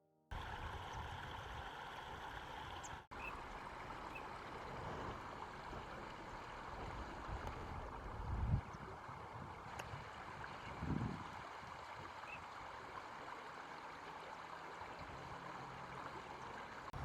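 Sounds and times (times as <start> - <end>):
stream water flowing: 0.3 - 17.0.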